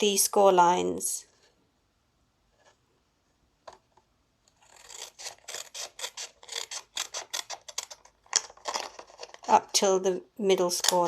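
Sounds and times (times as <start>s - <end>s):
scissors snipping paper: 4.5s - 9.6s.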